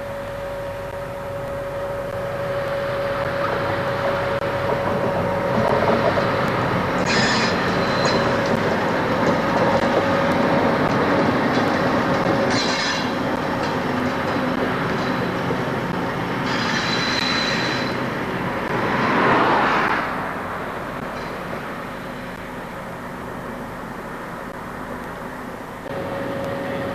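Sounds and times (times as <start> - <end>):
wheels squealing on rails: 0.0 - 23.0
diesel locomotive engine humming: 0.0 - 26.9.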